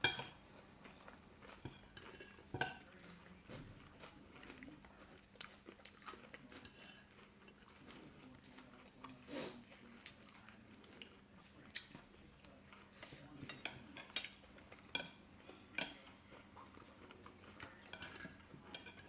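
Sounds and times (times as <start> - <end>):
cutlery scraping a plate: 0.0 - 0.4, 1.6 - 3.2, 6.4 - 7.4, 11.8 - 19.0
faint chewing: 0.0 - 19.0.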